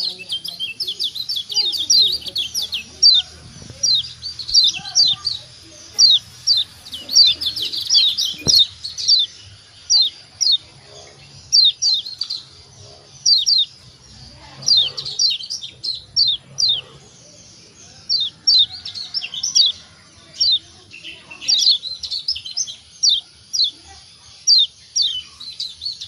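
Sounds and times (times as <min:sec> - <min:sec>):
bird giving sharp calls: 0:00.0 - 0:17.1.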